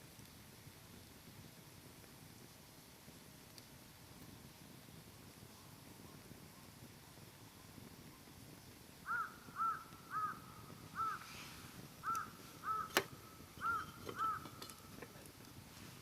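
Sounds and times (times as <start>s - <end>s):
campfire popping and crackling: 0.0s - 16.0s
crow cawing: 9.1s - 11.3s, 12.0s - 14.6s.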